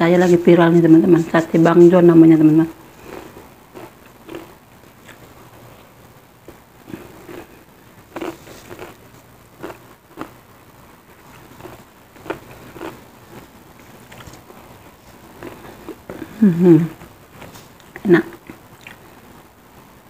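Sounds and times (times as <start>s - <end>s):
crackers crunching: 2.8s - 10.5s, 11.1s - 16.4s
soft chewing: 2.9s - 10.4s, 11.2s - 19.1s.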